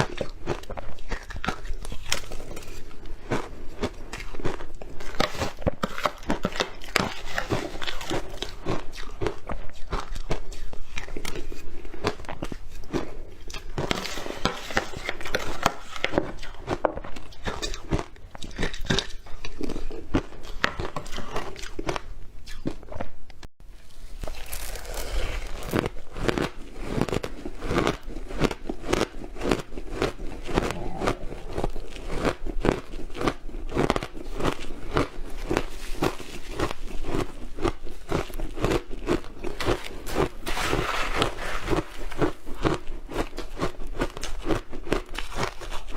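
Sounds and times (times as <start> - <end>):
crunchy chewing: 0.0 - 23.2, 23.8 - 45.9.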